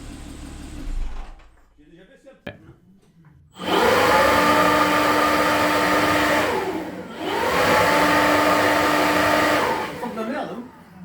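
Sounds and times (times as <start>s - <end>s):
car engine revving: 3.6s - 11.0s.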